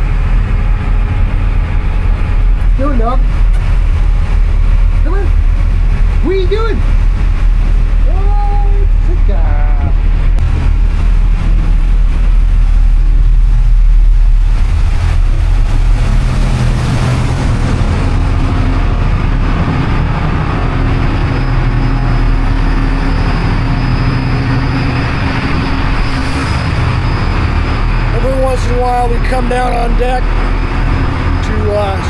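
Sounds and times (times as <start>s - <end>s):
boat engine drone: 0.0s - 32.0s
water rushing: 26.2s - 32.0s.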